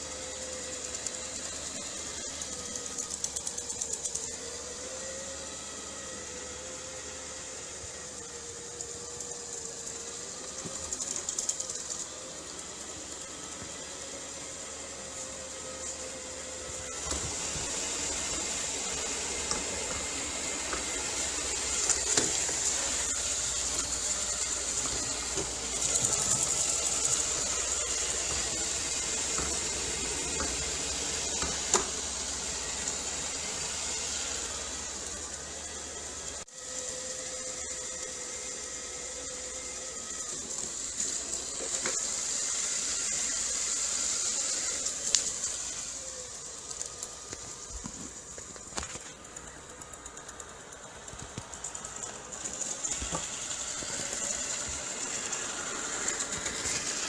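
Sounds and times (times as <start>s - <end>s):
robot vacuum whirring: 0.0s - 57.0s
faint clicks and brushing: 44.8s - 55.4s.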